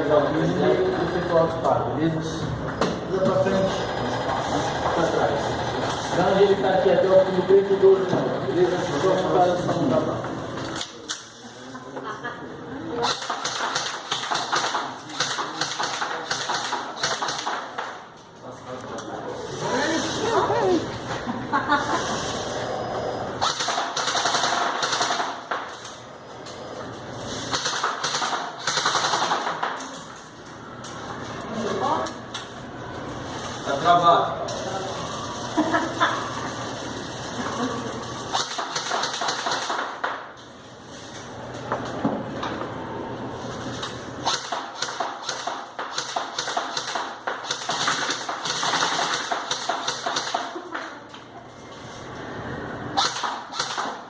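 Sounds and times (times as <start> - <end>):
airsoft rifle firing bursts: 23.4 - 25.5, 27.5 - 29.6, 38.3 - 40.0.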